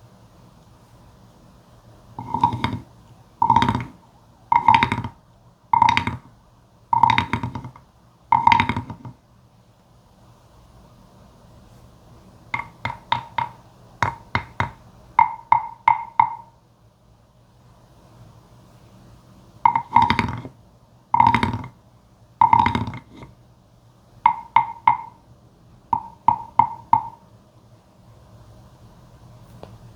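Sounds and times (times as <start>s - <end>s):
wooden frog guiro croaks: 2.2s - 5.2s, 5.8s - 6.3s, 7.0s - 9.1s, 12.6s - 16.5s, 19.7s - 20.5s, 21.2s - 21.8s, 22.4s - 23.3s, 24.3s - 25.2s, 25.9s - 27.2s.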